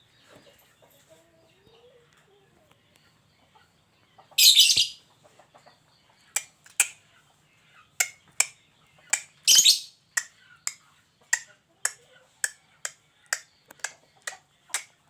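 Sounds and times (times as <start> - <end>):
harsh rasping bird calls: 4.4 - 5.0, 9.1 - 10.8.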